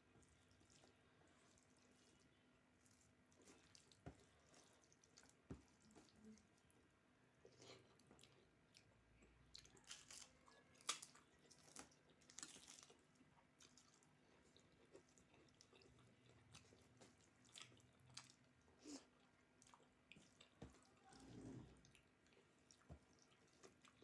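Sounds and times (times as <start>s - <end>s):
faint chewing and mouth sounds: 0.0s - 24.0s.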